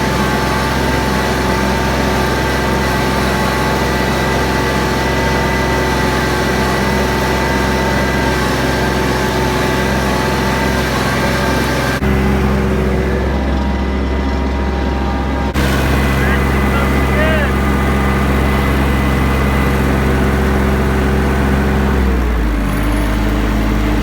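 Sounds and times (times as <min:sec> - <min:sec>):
heavy vehicle engine running: 0:00.0 - 0:24.0
steady whine: 0:12.0 - 0:18.8.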